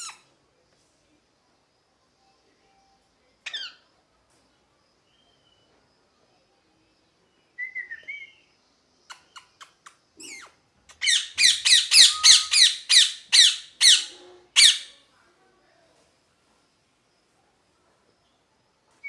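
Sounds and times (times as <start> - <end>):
parrot chirps and clicks: 9.1 - 14.9
parrot screeching: 11.0 - 14.9.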